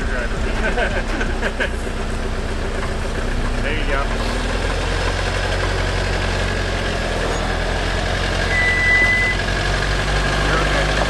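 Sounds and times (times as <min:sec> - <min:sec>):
car engine running at low revs: 0:00.0 - 0:11.0
high beep: 0:08.5 - 0:09.4.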